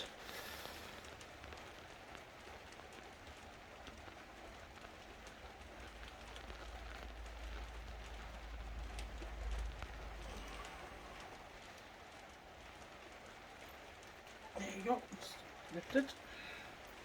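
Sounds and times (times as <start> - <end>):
adhesive crackling: 0.0 - 17.0
handling rumble: 5.8 - 13.0.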